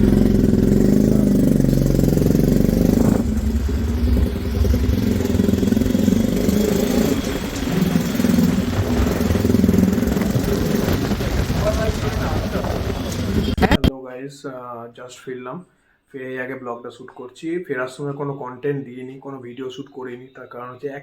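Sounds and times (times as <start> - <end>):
motorcycle engine idling and revving: 0.0 - 13.9.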